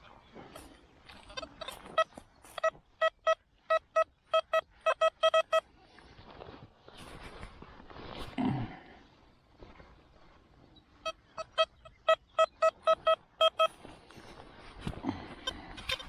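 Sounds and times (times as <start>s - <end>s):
metal detector beeps: 1.4s - 5.6s, 11.4s - 13.8s.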